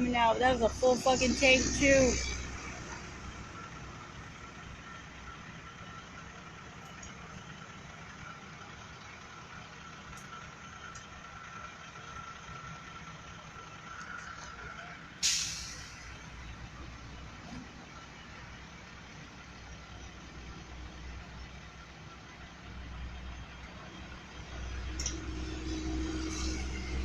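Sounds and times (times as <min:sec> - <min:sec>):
vehicle engine noise: 0:00.0 - 0:27.0
sudden loud hiss: 0:15.2 - 0:16.1.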